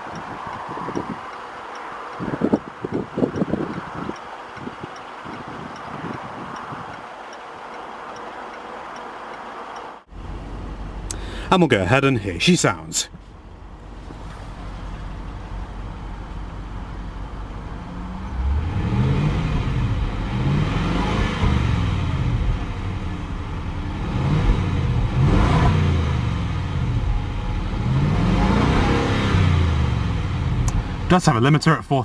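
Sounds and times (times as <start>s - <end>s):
car engine idling and revving: 0.0s - 32.0s.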